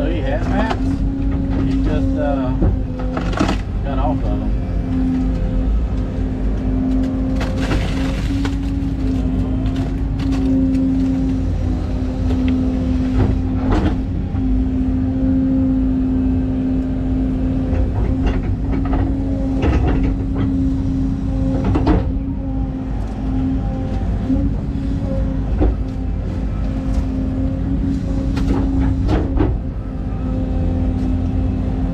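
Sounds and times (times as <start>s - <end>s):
excavator diesel engine running: 0.0s - 31.9s
machine clanks and knocks: 0.4s - 4.2s, 17.7s - 20.6s, 21.5s - 22.2s, 28.3s - 29.8s.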